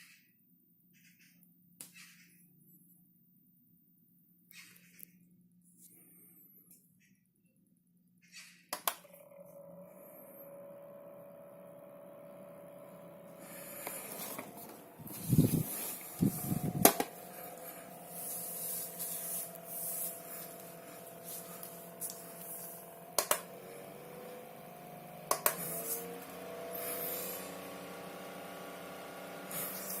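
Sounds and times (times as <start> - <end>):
mini fan motor whine: 9.0 - 30.0
fan button clicks: 16.0 - 17.2, 23.2 - 23.5, 25.3 - 25.7.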